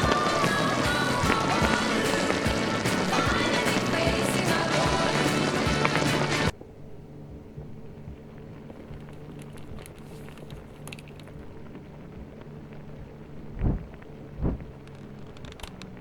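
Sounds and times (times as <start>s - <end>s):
dull low thumps: 0.0s - 9.2s, 11.4s - 14.8s
low steady hum: 0.0s - 16.0s
faint rustles and ticks: 6.6s - 16.0s.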